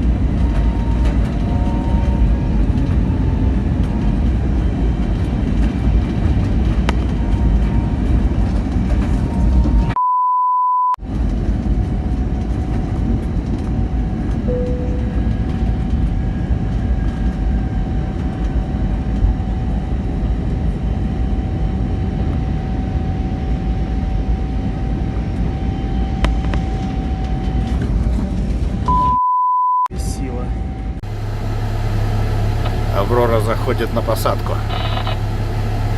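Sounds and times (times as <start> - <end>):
wind buffeting microphone: 0.0 - 9.9, 11.0 - 28.9
pure beep: 9.9 - 11.0, 14.5 - 15.3, 28.9 - 29.9, 34.6 - 35.2
faint high tone: 14.5 - 15.3.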